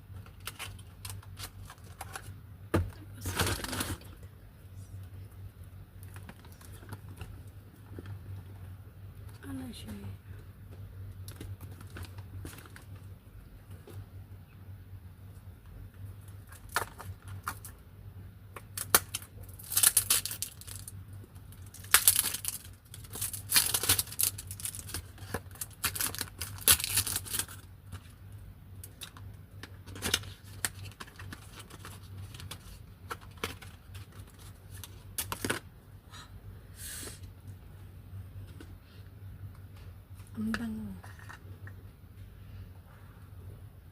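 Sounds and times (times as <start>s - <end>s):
packaging tearing and rustling: 0.2s - 2.4s, 3.2s - 4.2s, 11.3s - 13.1s, 16.4s - 17.8s, 18.6s - 28.1s, 28.8s - 35.6s.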